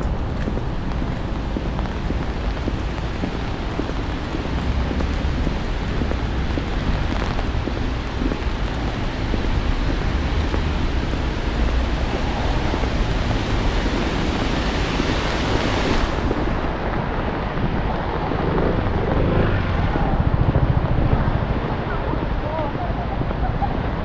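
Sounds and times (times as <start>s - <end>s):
rain and sleet hissing: 0.0s - 20.2s
wind rumble on microphone: 0.0s - 24.0s.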